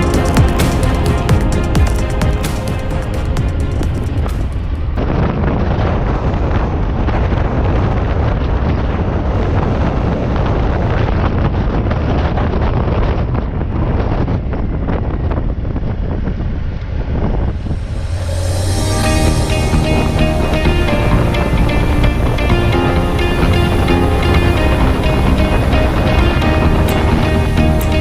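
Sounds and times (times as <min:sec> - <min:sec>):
wind buffeting microphone: 0:00.0 - 0:28.0
motorcycle engine droning: 0:17.4 - 0:28.0.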